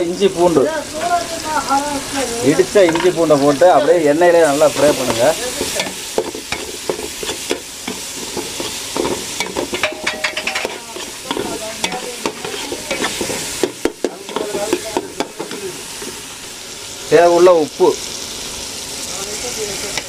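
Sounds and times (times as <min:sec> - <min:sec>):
food sizzling in oil: 0:00.0 - 0:20.0
metal spoon scraping pot: 0:04.5 - 0:16.2.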